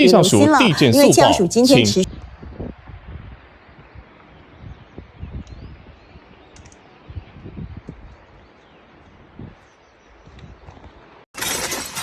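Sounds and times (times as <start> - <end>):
low rumbling noise: 2.0 - 9.6.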